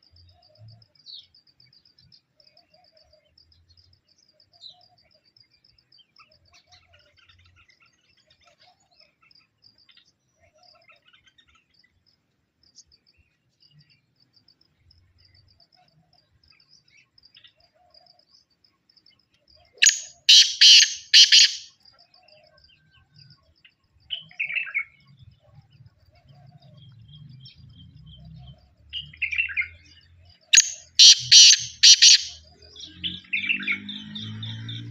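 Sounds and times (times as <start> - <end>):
faint high chirping: 13.7 - 32.5
falling bird call: 19.8 - 21.7, 30.6 - 32.4
harsh bird calls: 19.8 - 21.7, 30.5 - 34.9.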